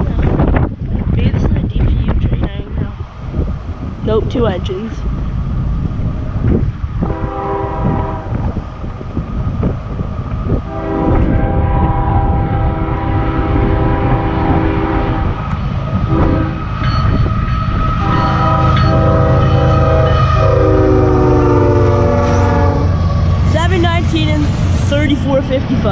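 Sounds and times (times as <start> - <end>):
train rumbling past: 0.0 - 25.9
locomotive air horn blasts: 7.0 - 8.6, 10.7 - 15.4, 16.1 - 16.8, 17.9 - 23.1.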